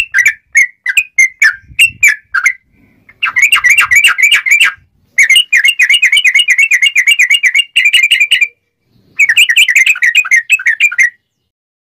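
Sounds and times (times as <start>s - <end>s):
bird chattering sharp chirps: 0.0s - 11.5s.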